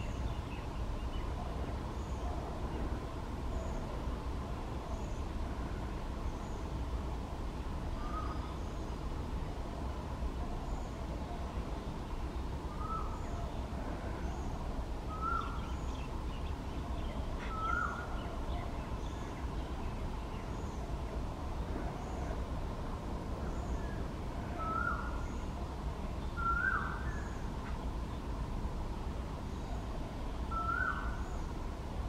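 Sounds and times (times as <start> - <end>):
bird calling: 8.0 - 8.8, 12.7 - 13.6, 14.2 - 19.5, 24.6 - 25.6, 26.3 - 27.8, 30.5 - 31.5.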